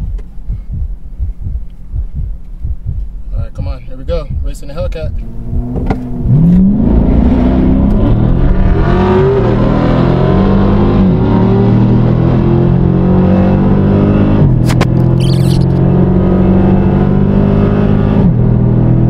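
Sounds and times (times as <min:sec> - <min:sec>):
car engine accelerating and upshifting: 0:05.1 - 0:19.0.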